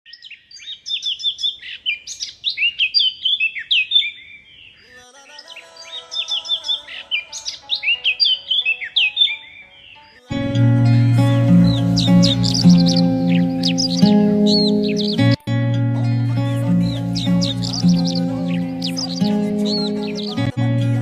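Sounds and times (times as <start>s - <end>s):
songbird chirping: 0.1s - 21.0s
soft music: 6.8s - 21.0s.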